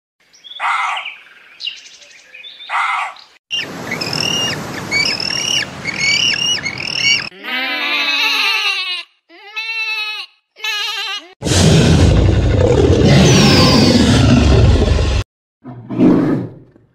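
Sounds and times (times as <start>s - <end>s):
penguins chirping: 3.6s - 7.3s.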